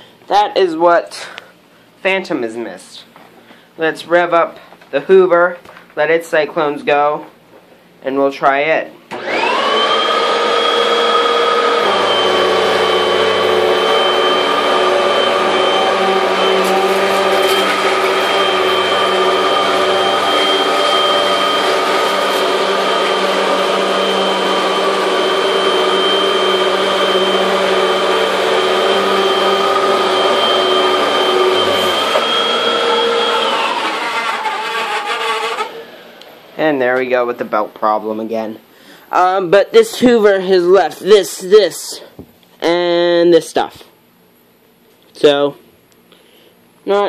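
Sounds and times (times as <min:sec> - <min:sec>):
vacuum cleaner motor whine: 0:09.1 - 0:36.6.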